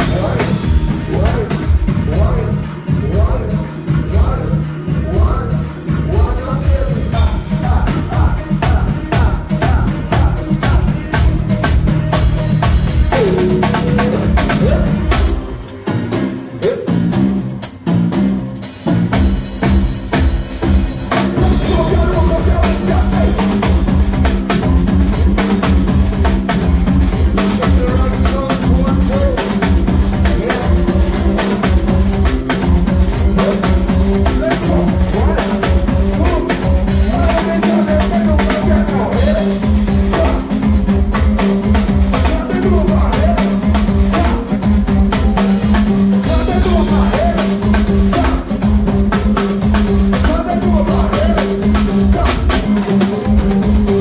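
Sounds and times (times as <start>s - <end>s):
live band playing: 0.0s - 54.0s
bass drum and snare hits: 18.0s - 54.0s.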